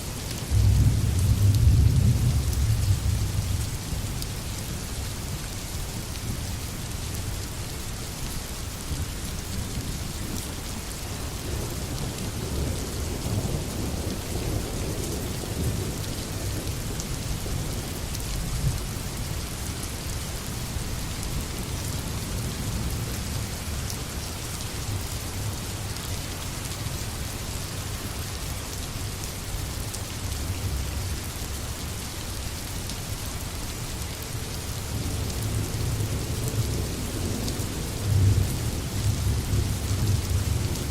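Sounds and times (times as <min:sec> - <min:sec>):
rain on foliage: 0:00.0 - 0:40.9
low rumble of thunder: 0:00.4 - 0:04.2, 0:11.4 - 0:18.9, 0:34.9 - 0:40.9.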